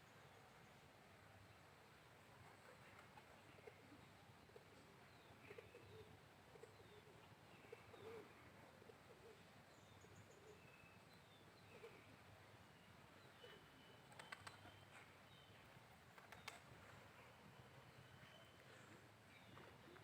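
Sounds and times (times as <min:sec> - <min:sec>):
faint bird chirps: 0:02.4 - 0:20.0.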